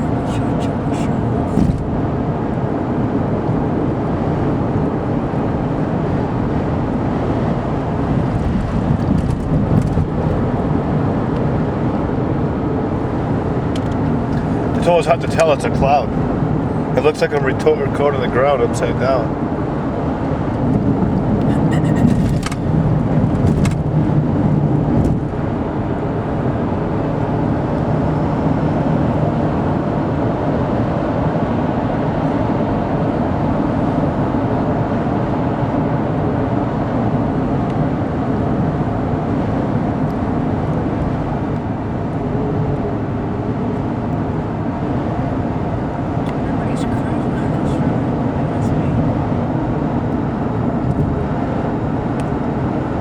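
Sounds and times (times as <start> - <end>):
car road and engine noise: 0.0 - 53.0.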